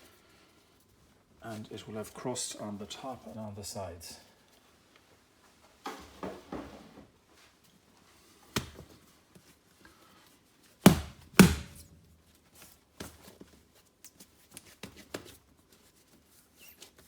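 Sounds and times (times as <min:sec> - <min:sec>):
dough thumping on bench: 0:08.5 - 0:08.9, 0:10.9 - 0:11.9.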